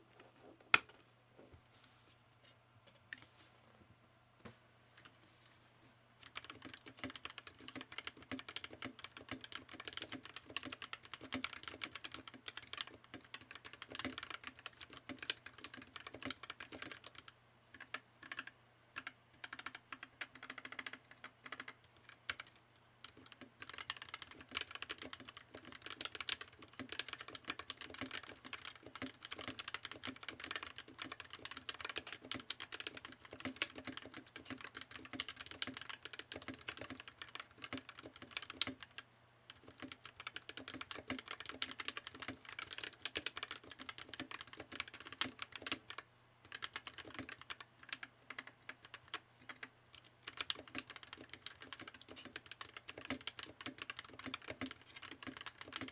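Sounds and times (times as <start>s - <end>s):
mechanical keyboard key clacks: 50.3s - 55.9s.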